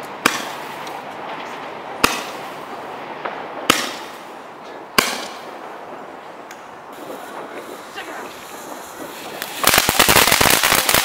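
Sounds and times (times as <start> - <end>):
fireworks bangs: 0.0 - 11.0
faint firework pops: 6.5 - 11.0.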